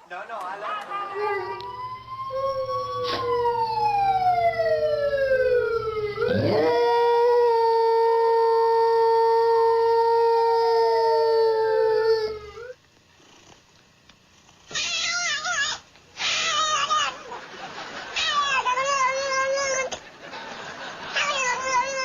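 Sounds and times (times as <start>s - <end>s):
dog howling: 1.0s - 12.8s, 18.1s - 19.9s, 21.2s - 22.0s.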